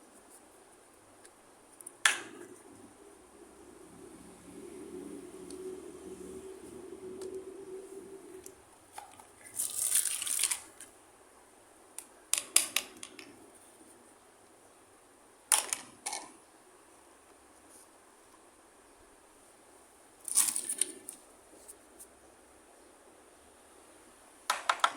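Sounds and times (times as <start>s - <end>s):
plastic toy pieces rustling: 9.4s - 10.9s, 20.3s - 21.2s.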